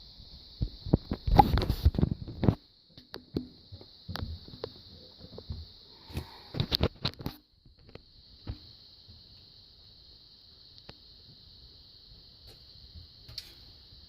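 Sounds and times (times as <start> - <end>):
steady high hiss: 0.0 - 14.0.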